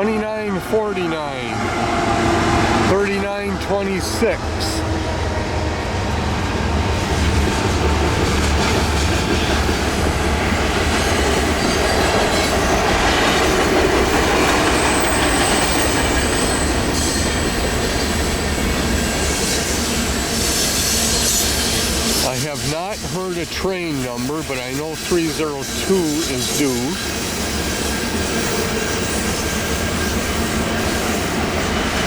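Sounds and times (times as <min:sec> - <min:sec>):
diesel locomotive engines droning: 0:00.0 - 0:32.0
train wheels rumbling on rails: 0:00.0 - 0:32.0
high wheel squeal: 0:14.7 - 0:22.3.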